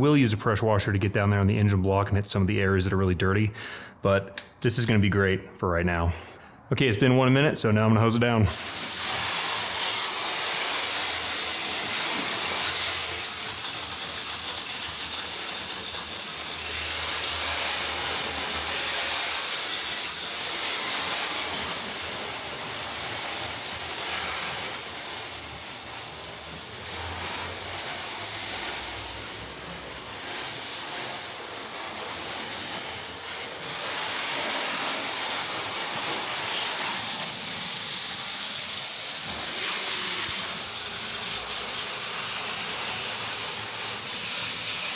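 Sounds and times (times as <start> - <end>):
hose water spraying on engine: 8.5 - 44.9.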